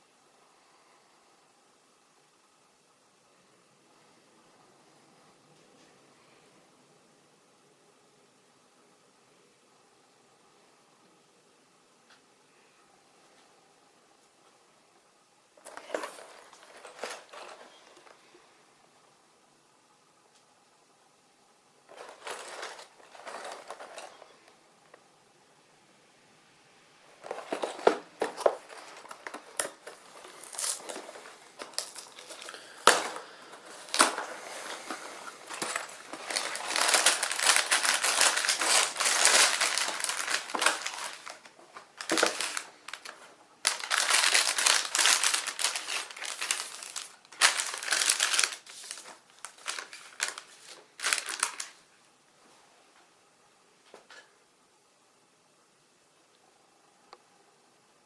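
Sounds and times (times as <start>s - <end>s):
plastic packaging crinkling: 15.6s - 18.3s, 21.9s - 24.5s, 27.2s - 51.8s.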